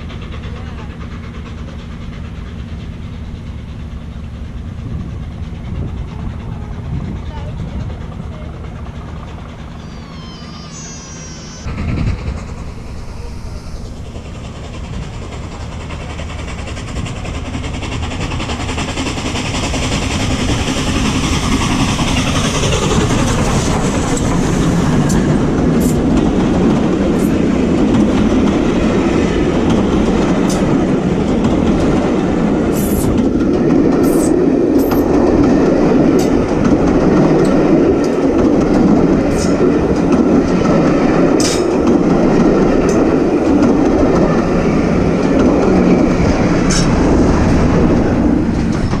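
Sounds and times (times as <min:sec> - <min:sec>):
train wheels rolling on rails: 0:00.0 - 0:49.0
falling tone: 0:09.6 - 0:14.6.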